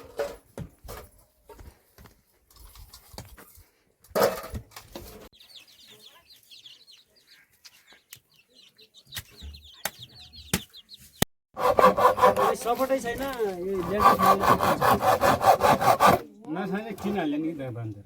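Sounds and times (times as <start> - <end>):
chickens cheeping: 5.3 - 11.2.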